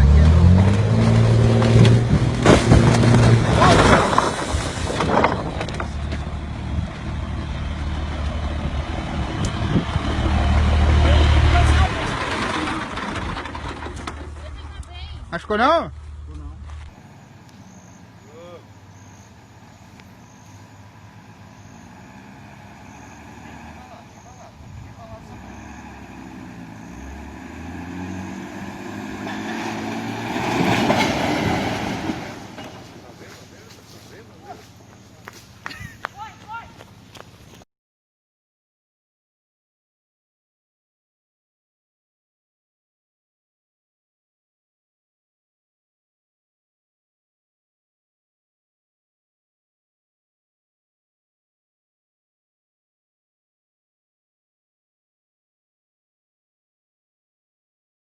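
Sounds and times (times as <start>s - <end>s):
heavy vehicle engine droning: 0.0s - 37.4s.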